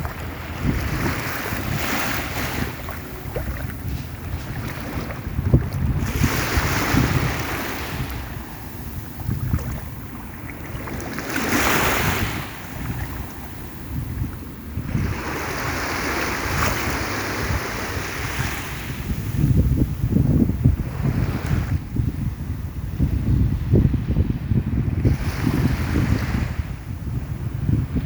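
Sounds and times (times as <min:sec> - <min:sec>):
sea waves washing in: 0:00.0 - 0:21.8
wind buffeting microphone: 0:00.0 - 0:28.0.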